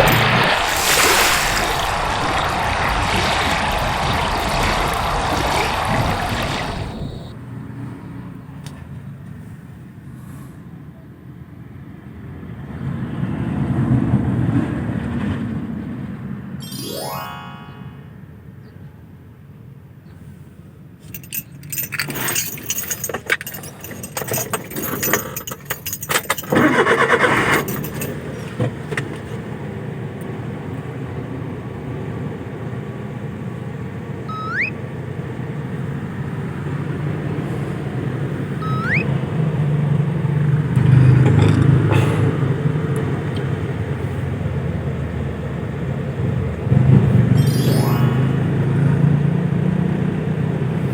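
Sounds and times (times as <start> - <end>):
short rising chirps: 16.6 - 18.1, 34.3 - 34.8, 38.5 - 39.2, 47.4 - 48.5
keys jangling: 21.1 - 28.5
vehicle engine running: 25.7 - 50.9.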